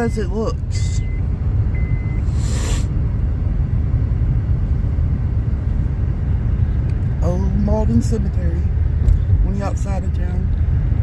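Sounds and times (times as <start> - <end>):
car engine and tyres rumbling: 0.0 - 11.0
brief hiss: 2.2 - 2.9.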